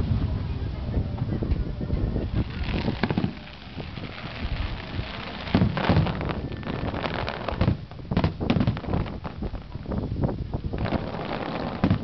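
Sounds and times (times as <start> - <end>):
firework shells bursting: 2.3 - 10.0, 10.7 - 12.0.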